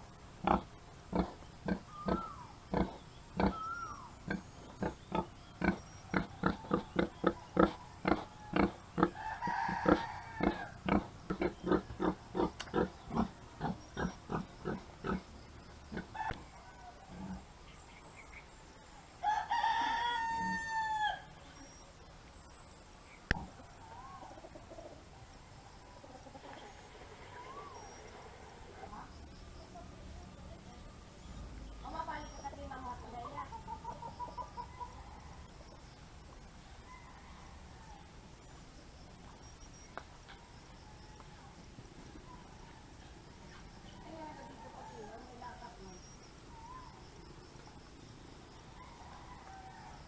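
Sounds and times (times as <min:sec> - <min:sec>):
rooster crowing: 0:07.4 - 0:11.0, 0:16.2 - 0:17.3, 0:19.2 - 0:21.4, 0:36.7 - 0:38.2, 0:48.6 - 0:50.0.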